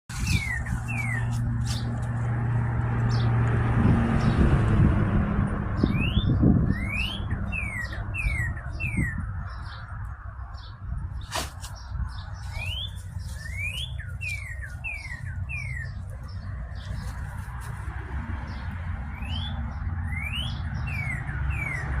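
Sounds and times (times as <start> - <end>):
birds whistling: 0.1 - 1.9, 5.8 - 9.9, 10.6 - 16.5, 18.5 - 22.0.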